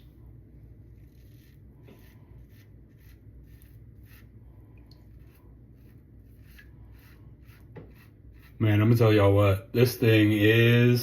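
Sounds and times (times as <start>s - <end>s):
razor scraping stubble: 0.9s - 9.3s.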